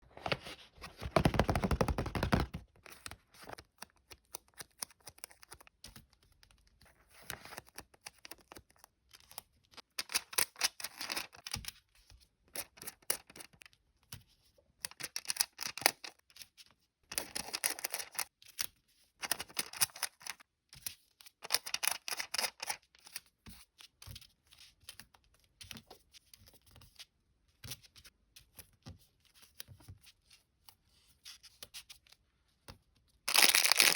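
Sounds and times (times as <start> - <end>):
packets crinkling and tearing: 33.3 - 33.9.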